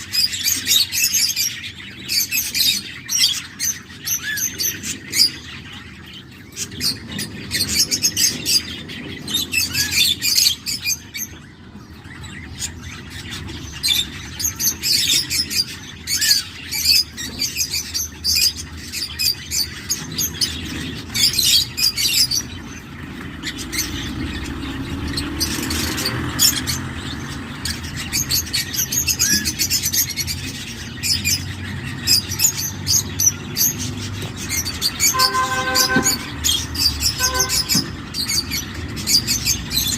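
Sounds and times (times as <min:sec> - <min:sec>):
chicks raspy begging calls: 0:19.7 - 0:39.9.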